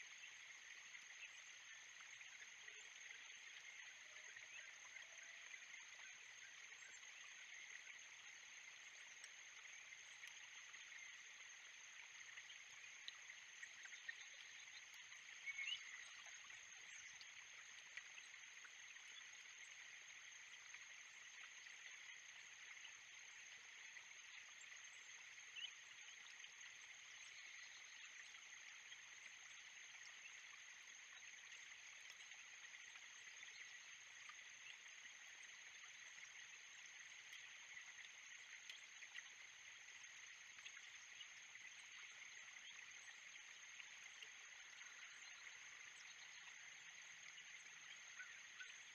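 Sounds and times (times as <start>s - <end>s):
insects calling: 10.6s - 20.4s, 39.5s - 48.9s.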